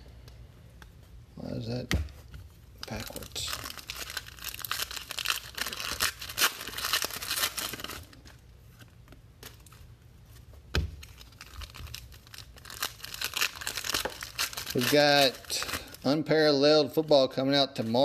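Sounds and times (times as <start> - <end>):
plastic wrapping tearing and crinkling: 2.8 - 8.4, 10.9 - 16.2
packaging handling: 2.8 - 16.1.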